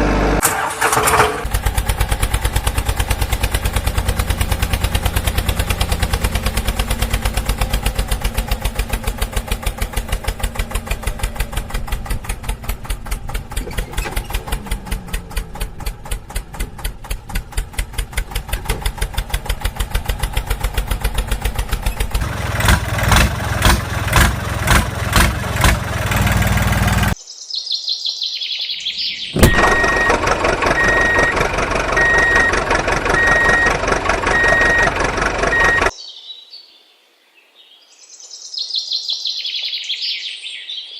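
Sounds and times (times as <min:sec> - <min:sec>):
steady engine sound: 0:00.0 - 0:27.2, 0:29.4 - 0:35.9
vehicle engine chugging: 0:00.0 - 0:27.2, 0:29.4 - 0:35.9
birds chirping: 0:27.1 - 0:30.2
on-off beep: 0:29.3 - 0:35.9.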